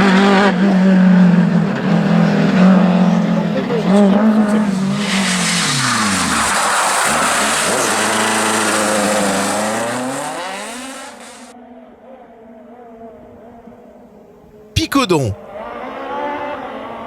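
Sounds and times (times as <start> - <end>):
rally car engine at high revs: 0.0 - 11.5.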